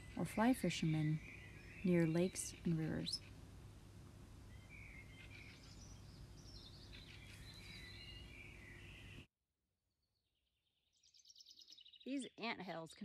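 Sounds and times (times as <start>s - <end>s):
faint songbird chirps: 0.0s - 3.5s, 4.4s - 9.3s, 10.0s - 13.0s
low outdoor background noise: 0.0s - 9.3s.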